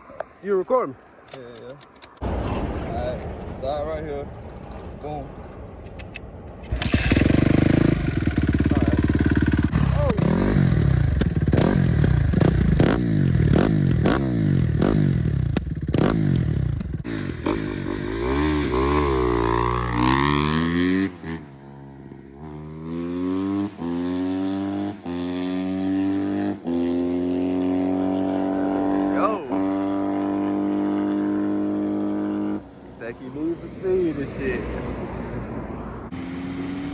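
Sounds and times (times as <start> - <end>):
dirt bike engine accelerating: 6.7 - 32.6.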